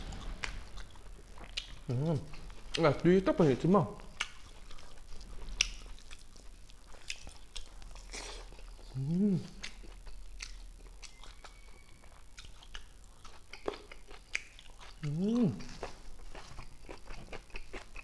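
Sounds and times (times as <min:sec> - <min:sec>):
chewing and lip-smacking: 0:00.1 - 0:02.8, 0:04.0 - 0:18.0
person humming: 0:08.9 - 0:09.6, 0:15.1 - 0:15.7.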